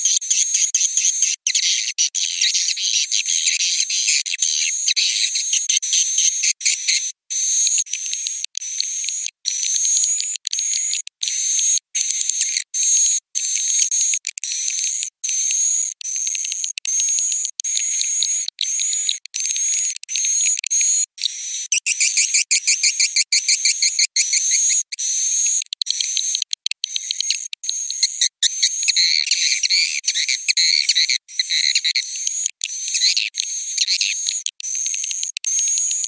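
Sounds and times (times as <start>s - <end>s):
swiftlets chirping and twittering: 0.0s - 7.1s, 26.8s - 35.2s.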